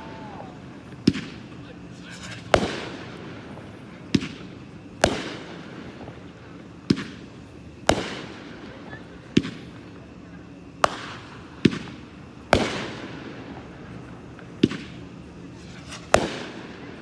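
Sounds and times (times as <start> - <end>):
firework bangs with echo: 0.0 - 6.2, 6.8 - 7.2, 7.8 - 9.6, 10.8 - 13.7, 15.8 - 17.0.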